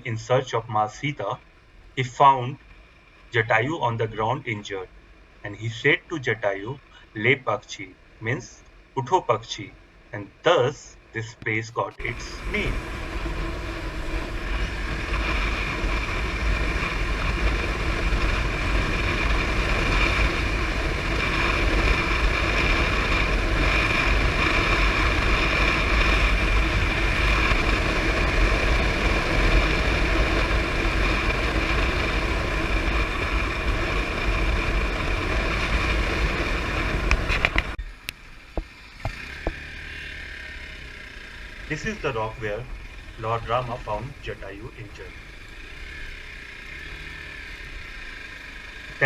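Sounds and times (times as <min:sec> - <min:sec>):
heavy low rumble: 0:00.0 - 0:38.7, 0:41.1 - 0:49.0
wind rushing over microphone: 0:12.0 - 0:37.8.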